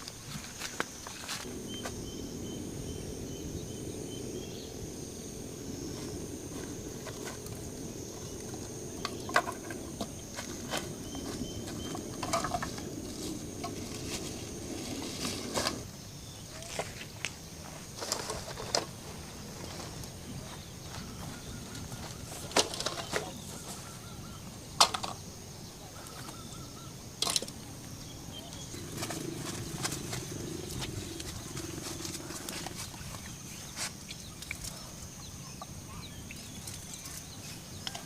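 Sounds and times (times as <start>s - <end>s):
fast pulsing insect chirp: 0.0s - 38.0s
insects calling: 0.0s - 38.0s
low rushing noise: 1.4s - 16.0s.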